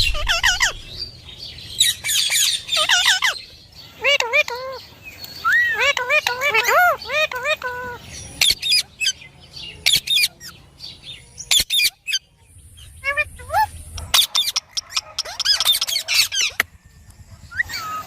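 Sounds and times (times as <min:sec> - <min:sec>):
parakeet squawking and chirping: 0:00.0 - 0:01.1, 0:01.8 - 0:03.4, 0:05.6 - 0:09.2, 0:11.4 - 0:16.6.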